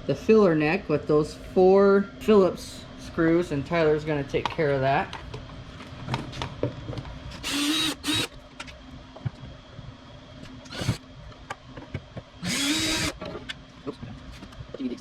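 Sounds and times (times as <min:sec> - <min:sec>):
power drill whirring: 0:07.4 - 0:08.3, 0:10.7 - 0:11.0, 0:12.4 - 0:13.2.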